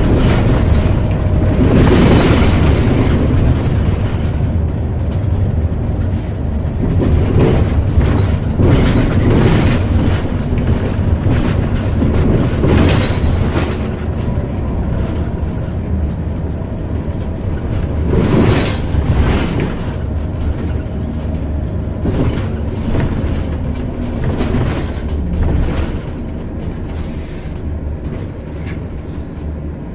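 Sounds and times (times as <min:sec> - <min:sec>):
bus engine and road noise: 0:00.0 - 0:29.9
cabin rattles: 0:06.8 - 0:15.5.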